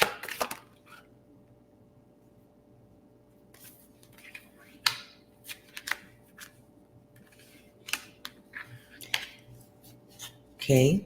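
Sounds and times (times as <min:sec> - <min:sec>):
cards tapping and clicking: 0:04.0 - 0:06.5.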